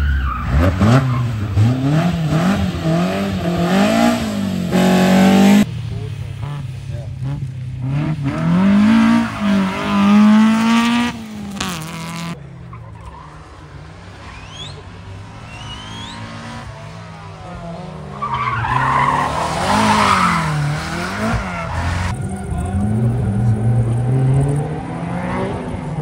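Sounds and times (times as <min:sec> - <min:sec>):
tyres squealing and skidding: 0:00.0 - 0:03.1, 0:08.7 - 0:11.6, 0:12.4 - 0:25.5
car engine revving: 0:00.3 - 0:26.0.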